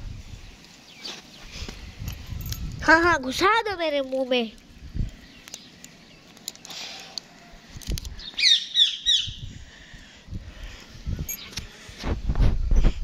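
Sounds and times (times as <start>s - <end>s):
small bird chirping: 4.0s - 7.2s, 8.1s - 9.5s.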